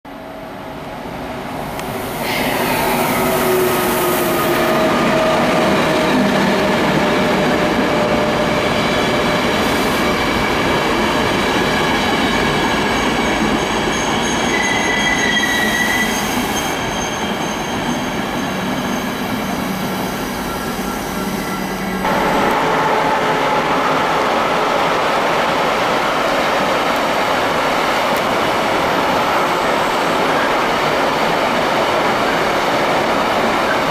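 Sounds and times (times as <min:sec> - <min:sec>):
freight train passing: 0:00.1 - 0:33.9
steady whining tones: 0:19.6 - 0:25.0.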